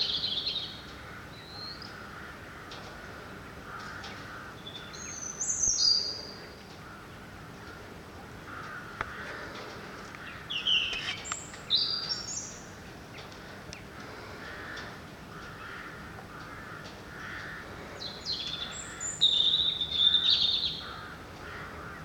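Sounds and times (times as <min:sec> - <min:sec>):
distant crows cawing: 0:00.0 - 0:22.0
songbird trilling: 0:10.2 - 0:12.7, 0:18.0 - 0:21.0.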